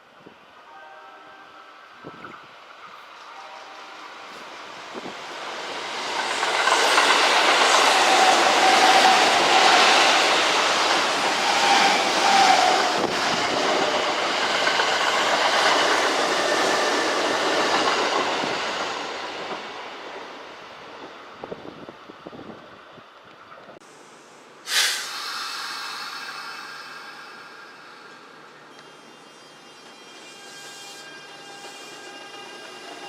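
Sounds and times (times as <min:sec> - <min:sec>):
electric train running past: 0:00.0 - 0:23.6, 0:24.4 - 0:33.0.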